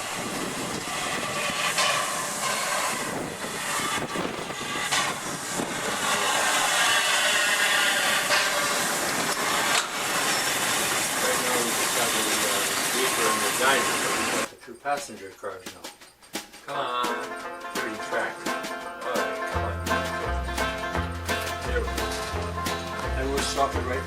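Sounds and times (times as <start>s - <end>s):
model train on track: 0.0s - 14.5s, 17.8s - 24.0s
steam hissing: 0.0s - 14.5s.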